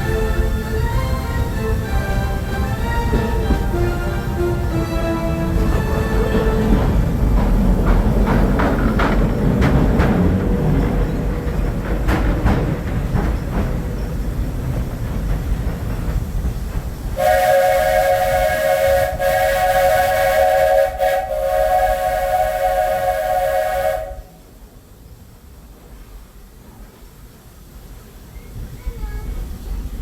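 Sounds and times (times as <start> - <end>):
train wheels clicking: 0.0 - 24.6
steam train running on track: 0.0 - 30.0
steam whistle chord blasts: 17.2 - 24.5.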